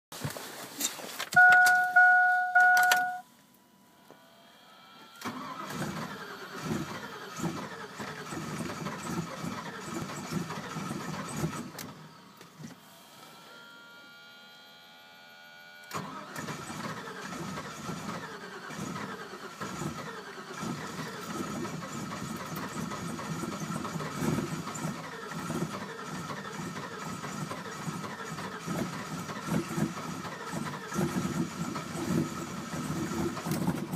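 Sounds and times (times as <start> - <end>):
car engine cranking and starting: 1.1 - 3.2, 5.1 - 12.8, 15.8 - 33.9
two-tone chime: 1.4 - 3.3.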